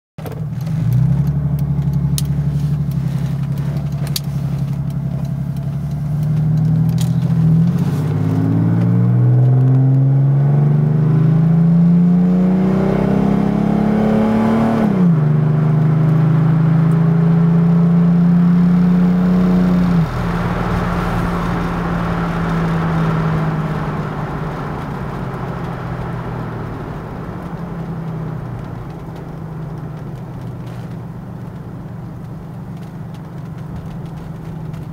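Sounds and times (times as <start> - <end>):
diesel car engine accelerating: 0.2 - 34.9.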